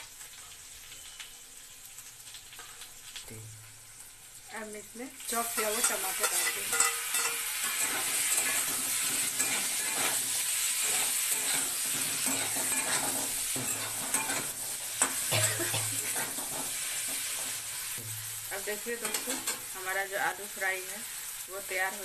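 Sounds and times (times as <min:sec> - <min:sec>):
vegetables sizzling in hot oil: 0:00.0 - 0:22.0
spatula clack: 0:05.6 - 0:17.5
spatula scraping a metal pan: 0:05.6 - 0:18.2.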